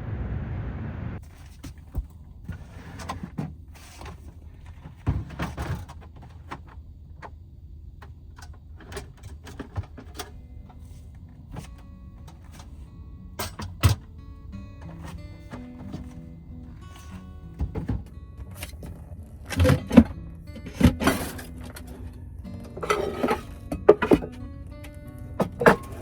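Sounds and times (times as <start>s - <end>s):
steady low rumble: 0.0s - 1.3s
objects knocking and clattering: 22.8s - 24.4s, 25.4s - 26.0s.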